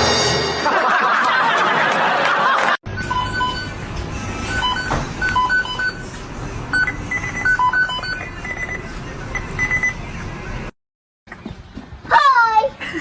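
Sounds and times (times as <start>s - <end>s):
short electronic beeps: 6.7s - 10.0s.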